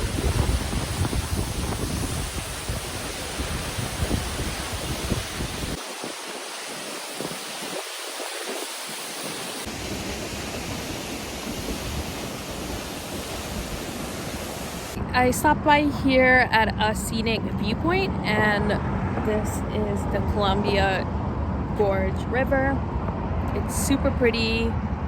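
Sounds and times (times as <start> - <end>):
waterfall rushing: 0.0 - 15.0
wind buffeting the microphone: 0.0 - 25.0.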